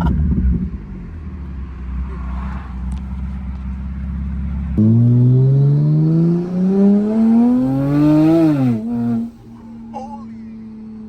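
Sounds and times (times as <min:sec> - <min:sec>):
car engine revving at full throttle: 0:04.7 - 0:09.9.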